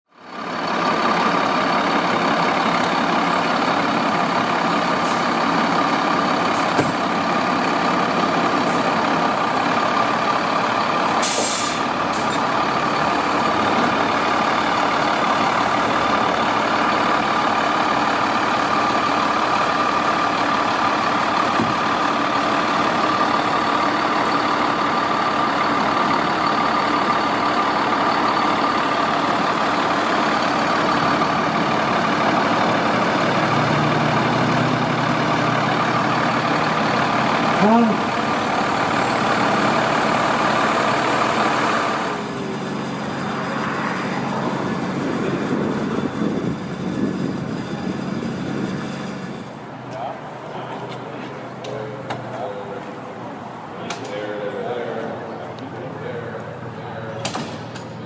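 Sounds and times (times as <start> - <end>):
diesel engine idling with whine: 0.1 - 58.0
air brake hiss: 11.1 - 12.4.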